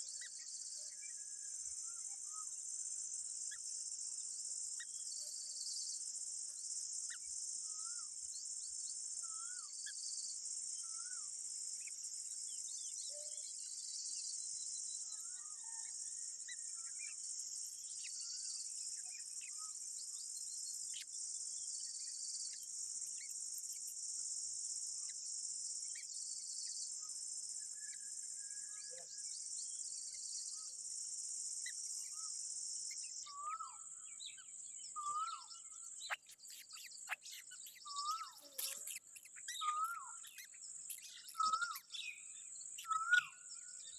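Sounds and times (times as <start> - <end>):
insect chorus drone: 0.0 - 43.9
bird chirps: 3.4 - 24.2, 31.6 - 43.9
whistled bird notes: 26.0 - 30.8, 31.6 - 43.9.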